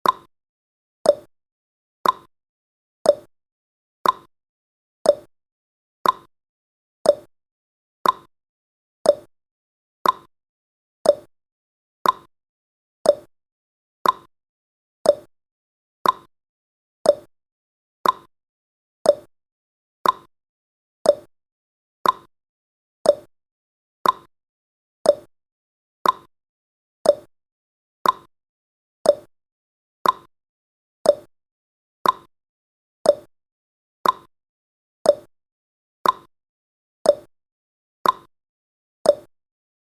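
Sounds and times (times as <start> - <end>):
clock ticking: 2.0 - 2.3, 6.0 - 6.3, 8.0 - 8.3, 10.0 - 10.3, 12.0 - 12.3, 14.0 - 14.3, 15.1 - 15.3, 16.0 - 16.3, 18.0 - 18.3, 20.0 - 20.3, 21.1 - 21.3, 22.0 - 22.3, 24.0 - 24.3, 25.1 - 25.3, 26.0 - 26.3, 27.1 - 27.3, 28.0 - 28.3, 29.1 - 29.3, 30.0 - 30.3, 31.1 - 31.3, 32.0 - 32.3, 34.0 - 34.3, 36.0 - 36.3, 38.0 - 38.3.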